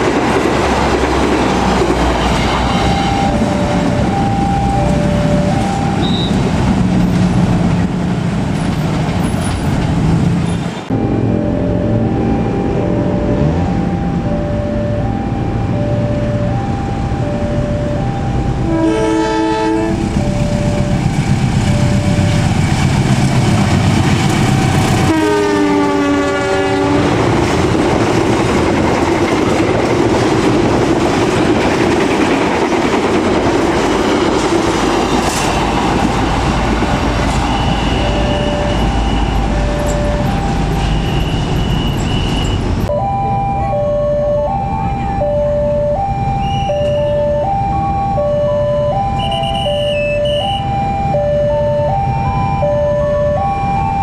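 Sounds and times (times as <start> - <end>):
level-crossing alarm chiming: 0.0 - 6.8, 10.8 - 23.0, 27.2 - 54.0
train rumbling with clattering wheels: 0.0 - 42.9
train horn: 1.9 - 3.8, 10.9 - 13.8, 18.6 - 21.0, 24.6 - 27.3, 49.1 - 50.7.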